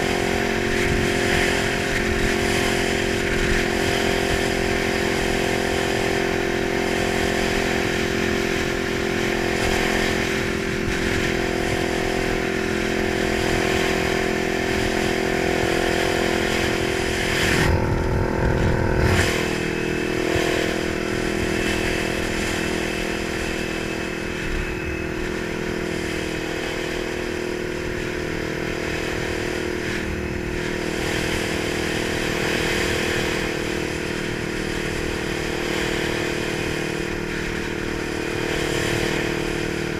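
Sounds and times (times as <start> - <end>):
motorcycle engine running: 0.0 - 39.9
rush of low noise: 16.4 - 31.4.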